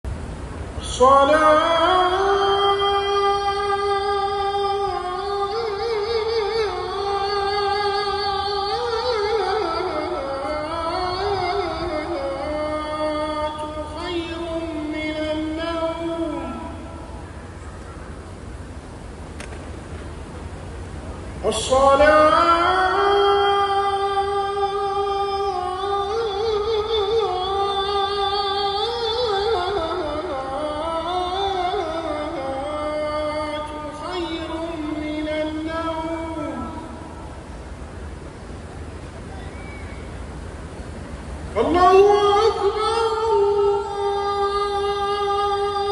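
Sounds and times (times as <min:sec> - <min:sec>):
solo voice chanting: 0:00.7 - 0:18.1, 0:21.3 - 0:37.4, 0:41.4 - 0:45.9.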